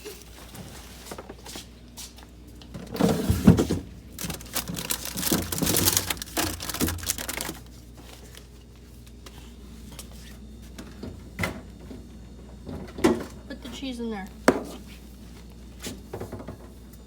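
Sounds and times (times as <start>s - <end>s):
packaging crinkling and rustling: 3.1s - 9.1s.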